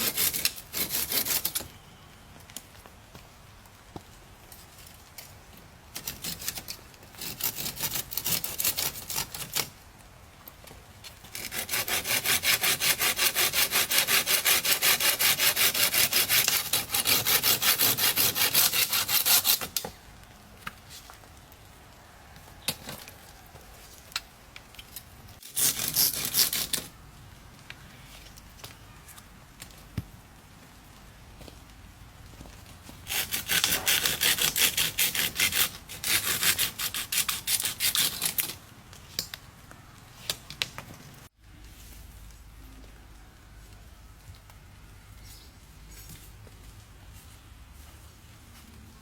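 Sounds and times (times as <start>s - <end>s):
saw cutting through wood: 0.0s - 1.6s, 7.2s - 9.4s, 11.3s - 19.8s, 33.1s - 38.6s.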